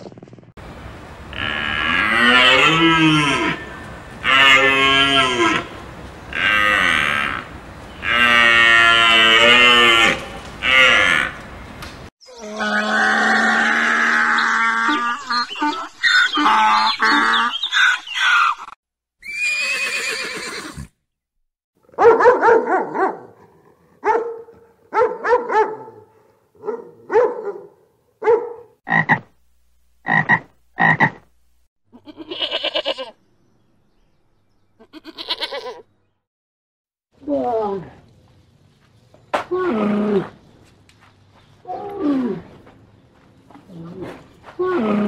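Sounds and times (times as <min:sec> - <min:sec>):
animal croaking calls: 0:01.3 - 0:05.7
harsh animal call: 0:12.2 - 0:20.9.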